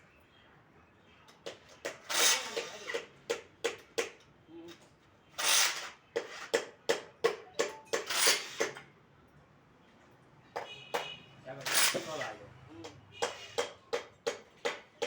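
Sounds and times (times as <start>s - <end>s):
hand tool scraping engine parts: 1.9s - 3.0s, 7.9s - 8.8s, 11.6s - 12.4s
long noisy tool strokes: 2.1s - 3.0s, 11.6s - 12.4s.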